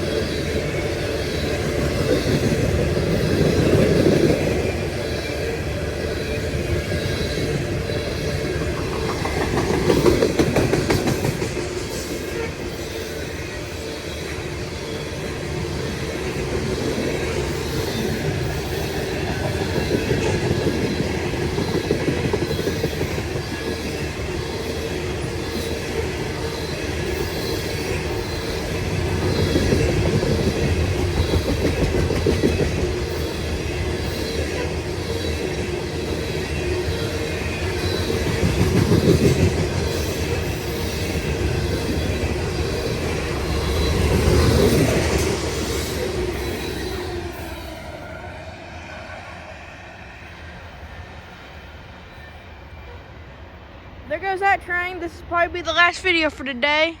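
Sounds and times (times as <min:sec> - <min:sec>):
train wheels clacking over rail joints: 0:08.7 - 0:12.4, 0:29.1 - 0:33.4.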